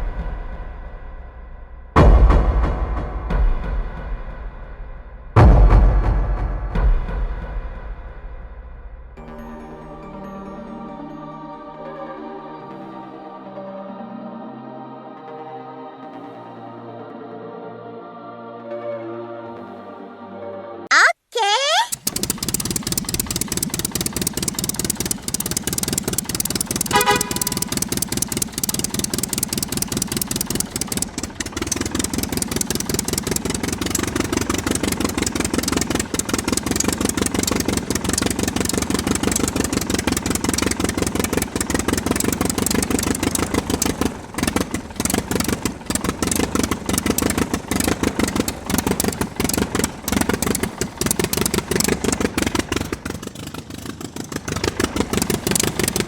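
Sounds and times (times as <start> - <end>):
miniature diesel engine running: 21.9 - 56.0.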